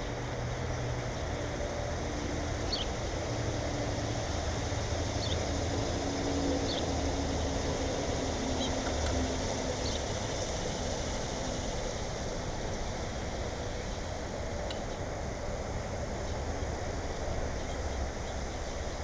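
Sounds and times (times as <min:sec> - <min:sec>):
low drone: 0:00.0 - 0:19.0
bird chirping: 0:02.7 - 0:02.9, 0:05.2 - 0:05.5.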